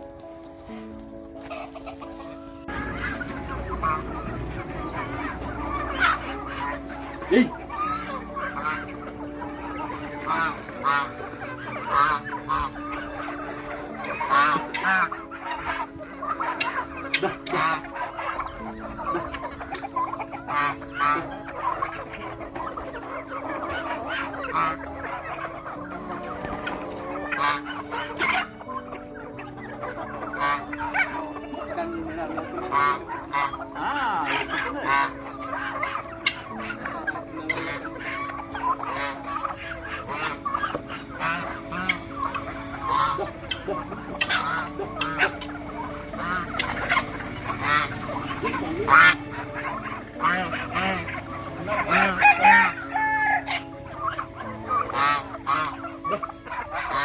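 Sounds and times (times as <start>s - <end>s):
chickens clucking: 0.0s - 57.0s
sharp chicken calls: 0.6s - 57.0s
rooster crowing: 52.1s - 53.7s.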